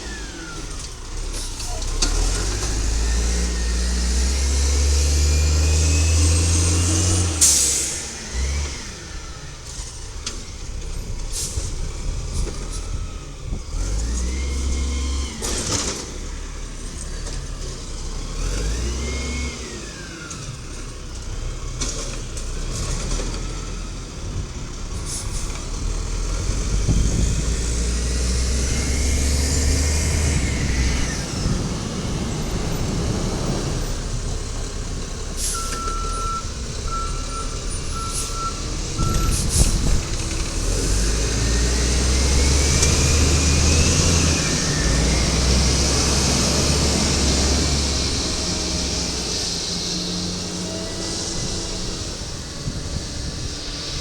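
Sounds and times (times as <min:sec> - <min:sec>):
garbage truck engine revving: 0:00.0 - 0:54.0
air brake hiss: 0:07.4 - 0:08.2, 0:11.3 - 0:11.8, 0:35.4 - 0:35.9, 0:37.8 - 0:38.4, 0:39.1 - 0:40.0.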